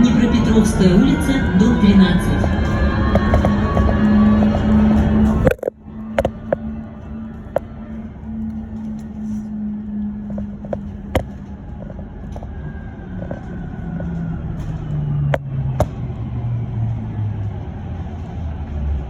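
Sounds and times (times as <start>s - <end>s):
electric bus motor whining: 0.0s - 19.0s
low rumble of the ride: 0.0s - 19.0s.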